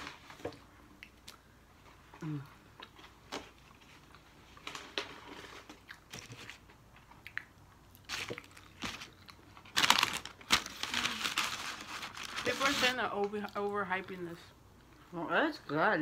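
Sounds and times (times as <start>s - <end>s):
crunchy chewing of fried food: 0.0s - 11.8s.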